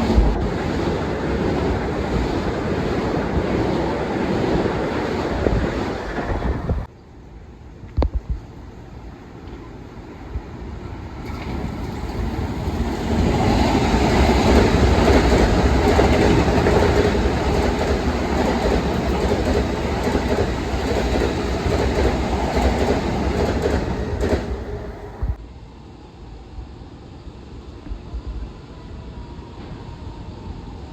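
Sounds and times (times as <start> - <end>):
train wheels rumbling on rails: 0.0 - 6.9, 10.4 - 25.4.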